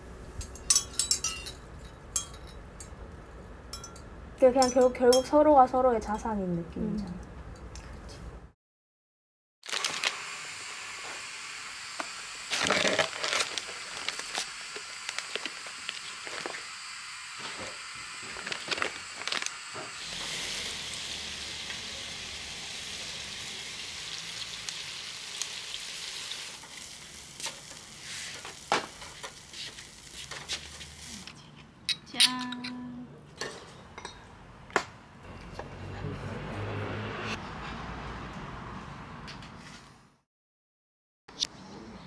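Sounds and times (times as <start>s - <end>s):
food sizzling in a hot pan: 9.7s - 31.3s.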